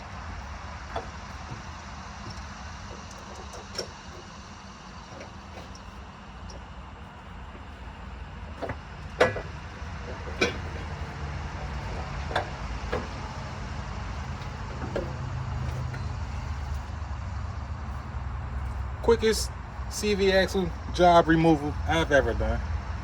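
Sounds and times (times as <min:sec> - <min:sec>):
metal clanks and knocks: 0:00.0 - 0:16.9
steady low rumble: 0:00.0 - 0:23.0.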